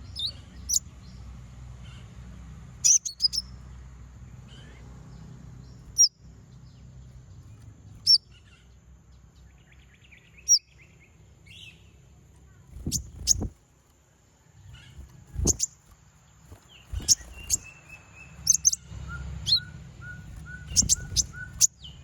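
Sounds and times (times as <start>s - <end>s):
bird chirping sharply: 0.0s - 0.9s, 2.8s - 3.6s, 5.7s - 6.2s, 8.0s - 8.8s, 12.7s - 13.6s, 14.7s - 15.9s, 16.5s - 22.0s.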